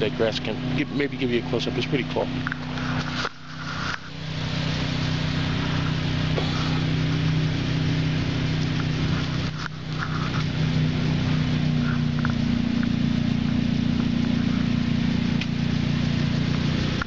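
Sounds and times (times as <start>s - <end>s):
low engine hum: 0.0s - 17.0s
hiss: 2.9s - 8.3s.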